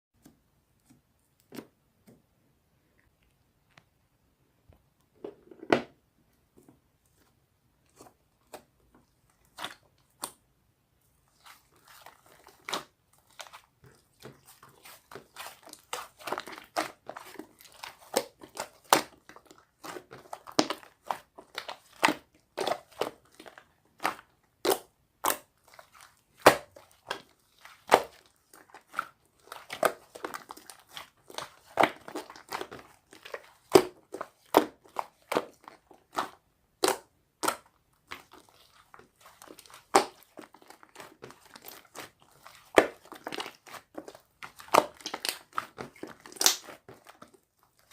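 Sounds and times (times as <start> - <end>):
slime squishing: 7.1 - 10.5, 11.2 - 47.9
slime popping and crackling: 11.4 - 47.9.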